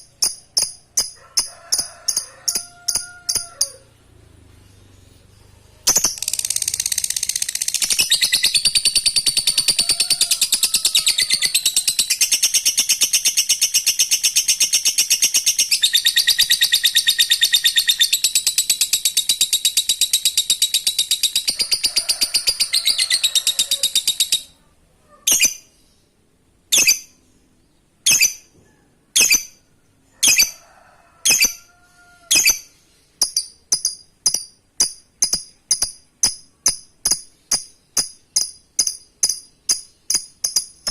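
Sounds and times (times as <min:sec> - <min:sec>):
bird sharp chirps: 0:05.8 - 0:19.7
bird rattling chatter: 0:05.9 - 0:10.6.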